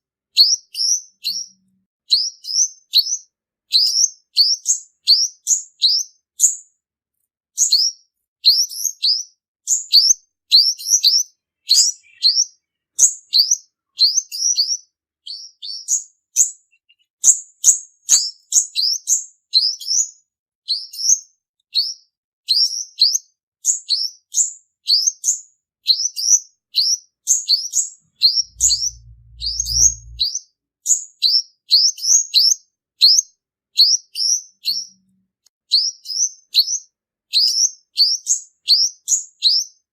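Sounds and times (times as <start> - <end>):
sunbird singing high chirps: 0.4 - 6.6, 7.6 - 20.1, 24.9 - 30.4
low hum: 28.1 - 30.3.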